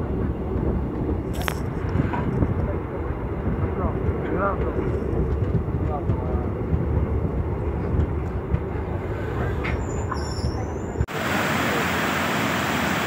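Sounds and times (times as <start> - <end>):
train rumbling inside coach: 0.0 - 11.6
floodwater rushing: 11.1 - 13.0.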